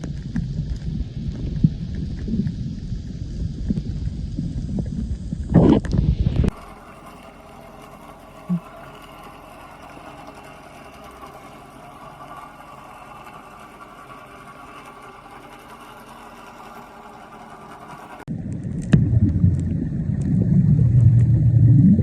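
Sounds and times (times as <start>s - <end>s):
mechanical hum: 0.0s - 22.0s
short low blip: 18.5s - 22.0s.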